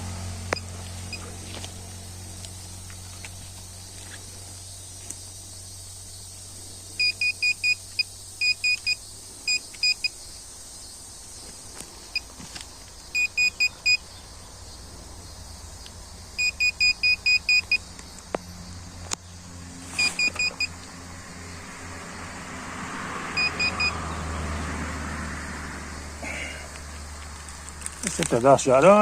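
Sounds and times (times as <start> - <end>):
metal detector beeping: 0.5 - 1.3, 7.0 - 10.1, 13.2 - 14.0, 16.4 - 17.8, 19.9 - 20.8, 23.4 - 24.0
rustling: 19.7 - 20.6, 26.8 - 28.6.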